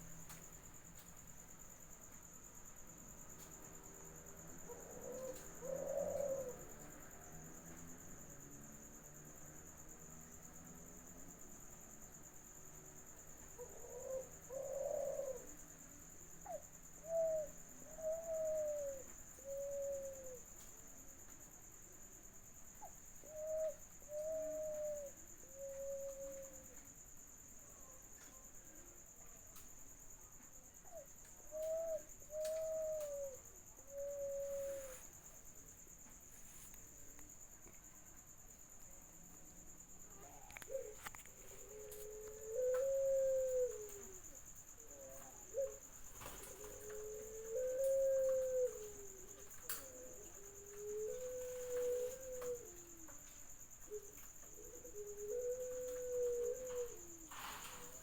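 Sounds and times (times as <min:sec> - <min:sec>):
dove cooing: 0:04.6 - 0:07.1, 0:13.3 - 0:15.7, 0:16.4 - 0:20.5, 0:22.8 - 0:26.8, 0:30.8 - 0:35.2, 0:40.1 - 0:58.0.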